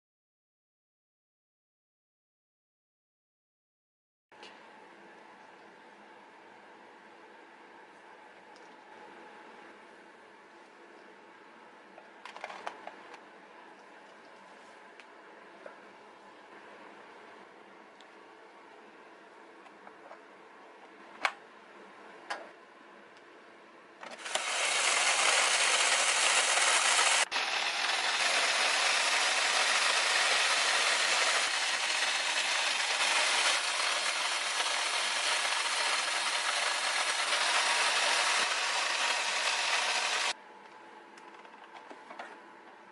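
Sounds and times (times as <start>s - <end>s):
toy vacuum cleaner whirring: 24.1s - 40.4s.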